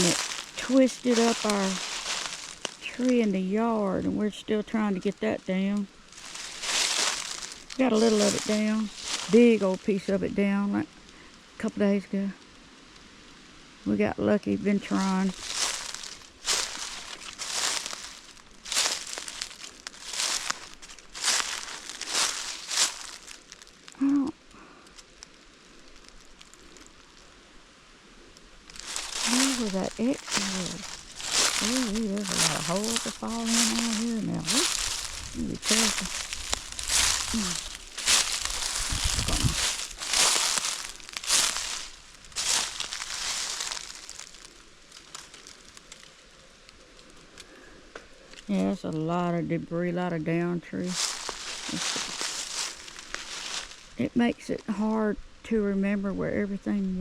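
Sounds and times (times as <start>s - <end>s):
footsteps crunching dry leaves: 0.0s - 10.4s, 14.7s - 24.2s, 25.0s - 27.4s, 28.4s - 46.3s, 50.7s - 54.0s.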